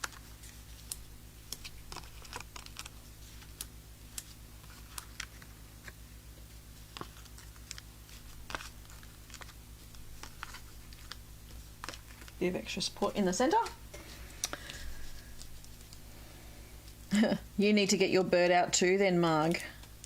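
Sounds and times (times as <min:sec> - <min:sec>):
light paper clicks and rustles: 0:00.0 - 0:12.4
low steady hum: 0:00.0 - 0:20.0.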